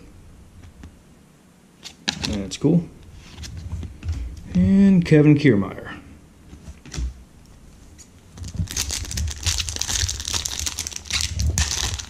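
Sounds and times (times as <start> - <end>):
wrapper crinkling: 8.4 - 12.0.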